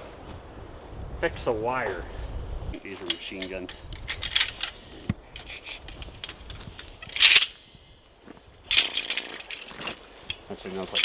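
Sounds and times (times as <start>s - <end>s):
metal tools clinking: 2.8s - 7.8s, 8.6s - 11.0s.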